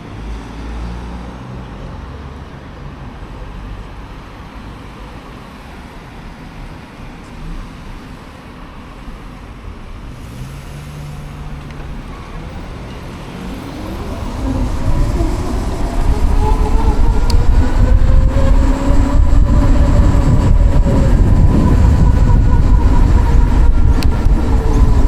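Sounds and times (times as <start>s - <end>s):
wind and road noise: 0.0s - 25.0s
electric motorcycle motor whine: 13.8s - 25.0s.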